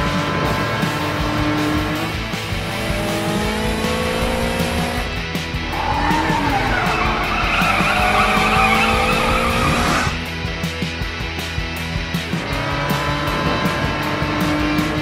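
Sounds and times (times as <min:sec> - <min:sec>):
sports car accelerating: 0:00.0 - 0:10.2, 0:12.2 - 0:15.0
background music: 0:00.0 - 0:15.0
tyres screeching: 0:05.6 - 0:10.2.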